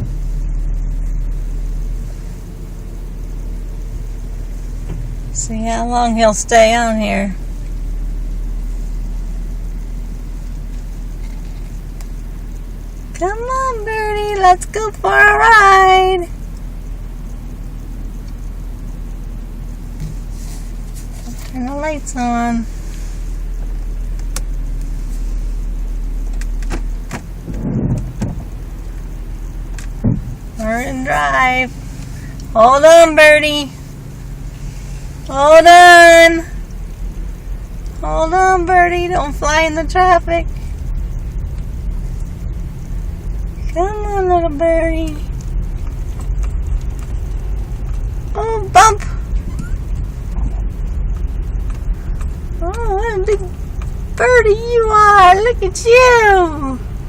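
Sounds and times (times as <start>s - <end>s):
car engine and road noise: 0.0s - 57.0s
loud knock: 30.0s - 30.3s.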